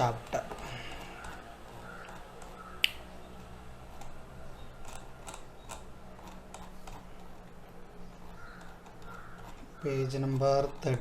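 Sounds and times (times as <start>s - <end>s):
sharp click: 2.8s - 3.1s.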